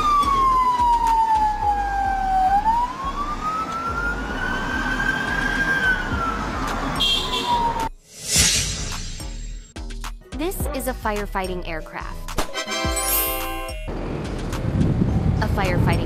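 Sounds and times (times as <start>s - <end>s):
siren wailing: 0.0s - 8.0s
engine and road rumble: 0.0s - 10.3s, 13.6s - 16.0s.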